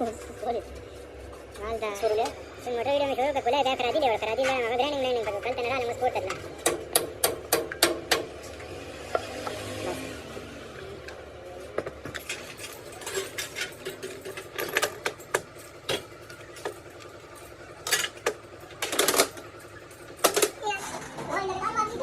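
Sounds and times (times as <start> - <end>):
metal tools clinking: 11.1 - 21.3.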